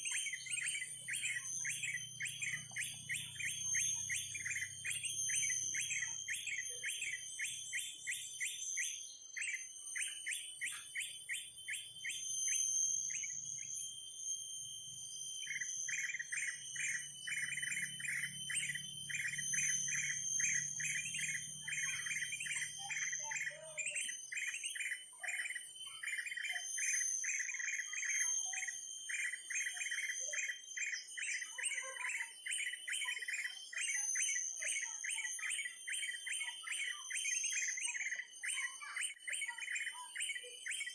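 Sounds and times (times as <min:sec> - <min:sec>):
bird chirping: 0:15.4 - 0:40.9.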